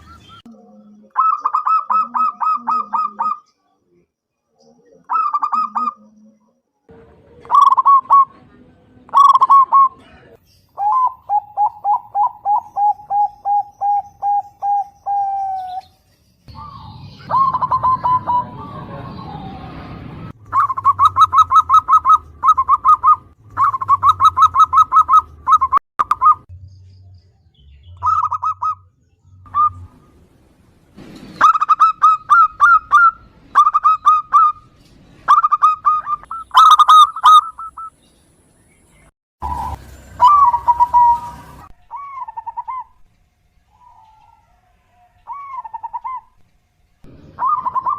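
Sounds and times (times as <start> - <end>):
dove cooing: 0.6 - 3.5, 4.9 - 6.4, 9.1 - 15.8, 16.5 - 19.6, 20.5 - 26.4, 39.4 - 43.0, 43.7 - 46.4, 47.1 - 47.9.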